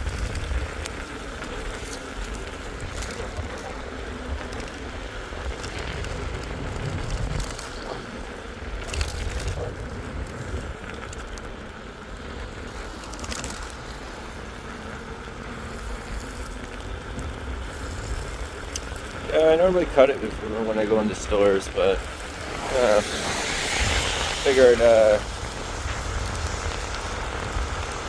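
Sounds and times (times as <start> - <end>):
crackles: 0.0 - 28.0
rain hiss: 0.0 - 28.0
wind rumble on microphone: 0.0 - 28.0.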